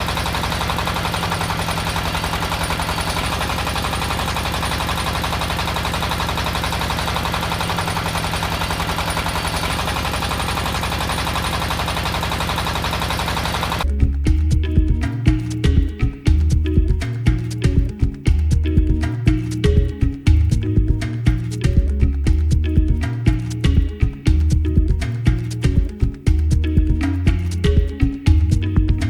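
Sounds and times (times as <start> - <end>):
fast rattling hammer: 0.0 - 13.9
drilling rig engine hum: 0.0 - 29.0.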